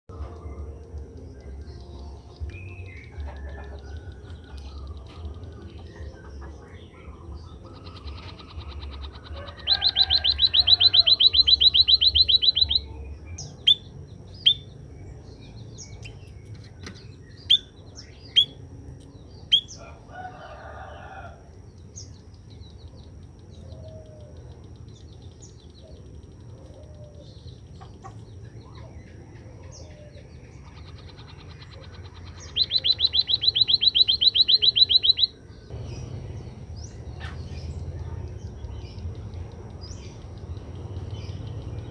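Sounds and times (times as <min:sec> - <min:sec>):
bird high-pitched trill: 0:00.2 - 0:14.8, 0:30.6 - 0:38.0.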